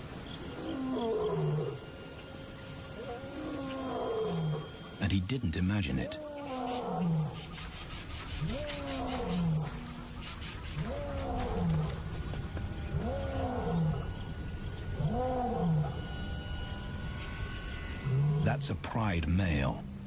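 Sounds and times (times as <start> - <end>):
lion roaring: 0.4 - 1.8, 3.0 - 4.8, 6.0 - 7.6, 8.4 - 16.2, 18.0 - 18.5.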